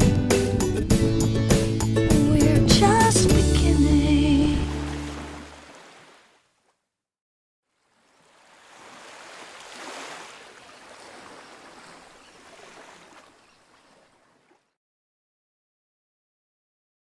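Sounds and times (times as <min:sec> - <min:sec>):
rushing sea water: 0:01.6 - 0:06.4, 0:07.7 - 0:14.7.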